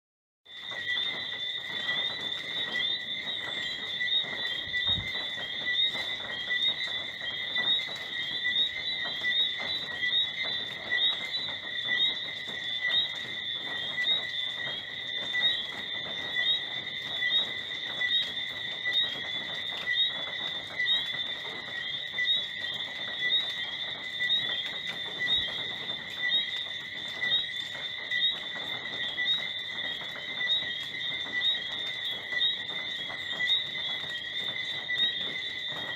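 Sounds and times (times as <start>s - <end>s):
frog chirps: 0.5s - 20.2s.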